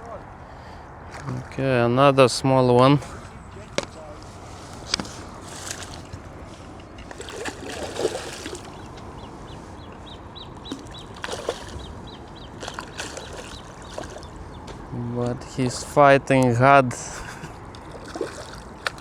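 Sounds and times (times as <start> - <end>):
water splashing from fish: 5.2 - 6.2, 7.1 - 9.0, 10.6 - 14.6, 17.8 - 19.0
bird chirping: 7.8 - 15.6.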